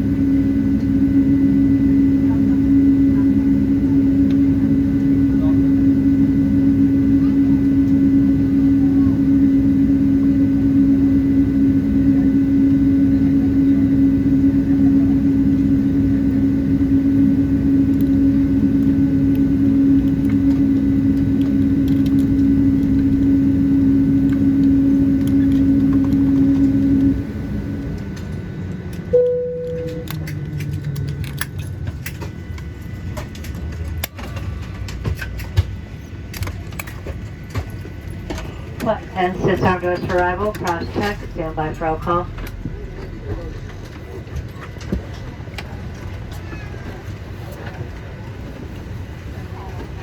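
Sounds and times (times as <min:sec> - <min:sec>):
aircraft engine and air conditioning hum: 0:00.0 - 0:50.0.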